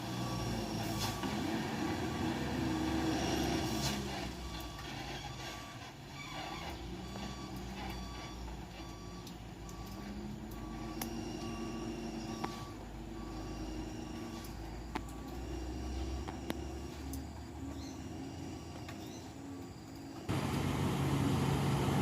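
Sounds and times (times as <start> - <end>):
reversing alarm beeping: 0.0 - 20.3
diesel truck engine running: 0.0 - 22.0.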